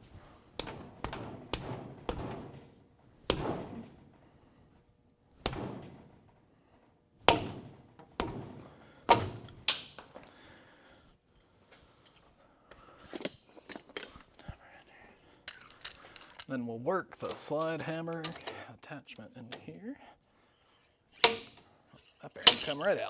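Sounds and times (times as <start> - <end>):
sharp metal knocks: 0.6 - 4.2, 5.4 - 6.4, 7.2 - 10.3, 21.2 - 21.7, 22.5 - 22.9.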